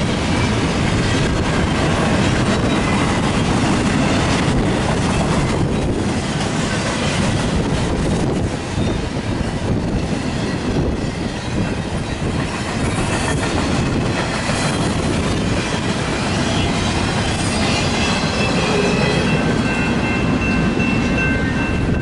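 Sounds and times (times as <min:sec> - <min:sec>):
freight cars rumbling on rails: 0:00.0 - 0:22.0
high wheel squeal: 0:16.3 - 0:22.0.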